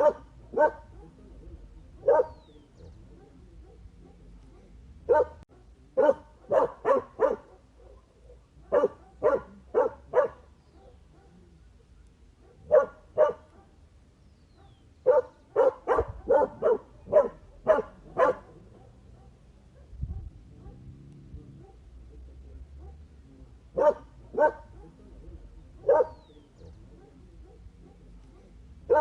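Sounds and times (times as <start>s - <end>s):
dog barking: 0.0s - 13.8s, 14.5s - 29.0s.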